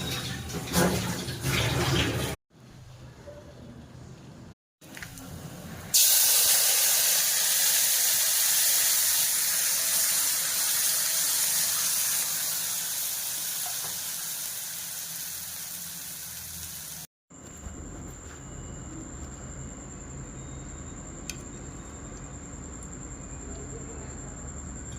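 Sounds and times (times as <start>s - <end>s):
food sizzling in hot oil: 5.9s - 17.1s.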